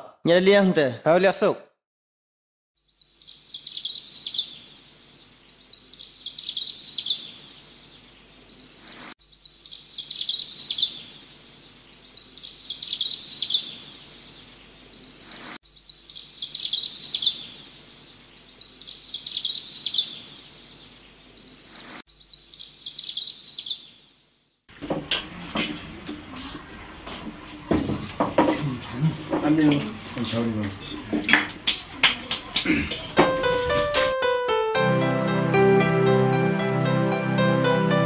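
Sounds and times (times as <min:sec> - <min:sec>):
songbird singing: 0:02.8 - 0:25.5.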